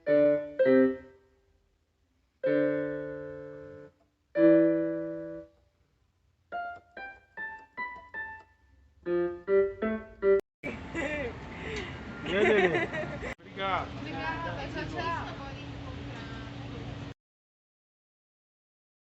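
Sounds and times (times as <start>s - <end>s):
piano notes and chords: 0.0s - 1.2s, 2.4s - 5.6s, 6.5s - 10.9s.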